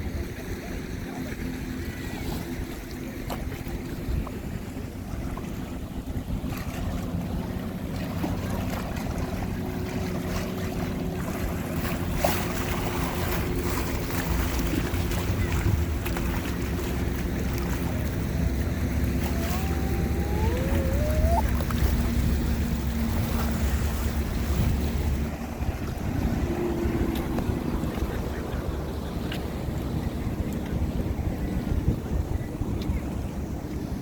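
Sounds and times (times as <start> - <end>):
waves washing in: 0.0 - 34.0
wind buffeting microphone: 0.0 - 34.0
short rising squeals: 18.9 - 22.3.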